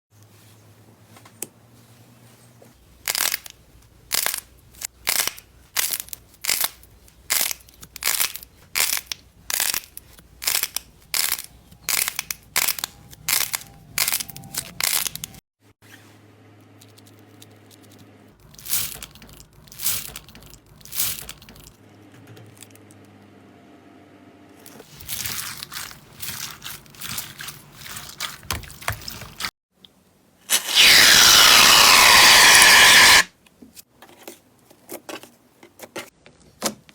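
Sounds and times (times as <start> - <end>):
loud steady crackling: 30.5 - 33.3
slime crackling pops: 30.5 - 33.3.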